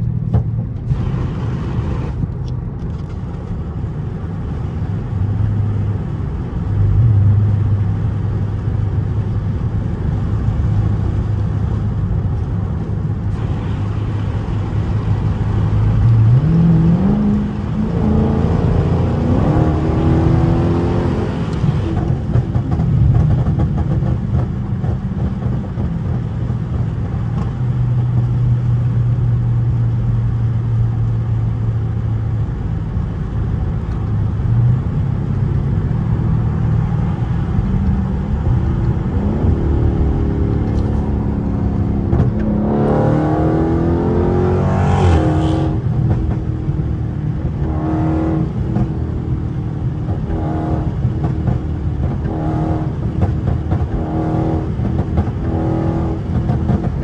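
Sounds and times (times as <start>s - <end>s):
car engine droning: 0.0s - 57.0s
engine accelerating through gears: 12.4s - 29.0s, 33.9s - 57.0s.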